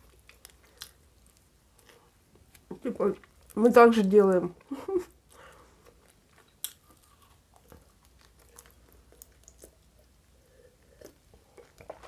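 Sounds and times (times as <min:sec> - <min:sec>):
close chewing of food: 0:00.0 - 0:04.0, 0:04.6 - 0:12.0.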